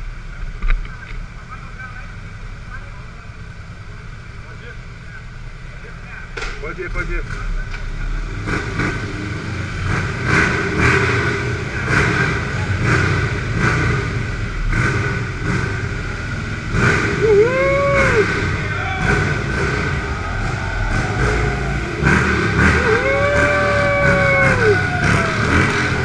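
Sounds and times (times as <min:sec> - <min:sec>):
motorcycle engines revving: 0:02.2 - 0:26.0
rising and falling tone: 0:19.0 - 0:26.0.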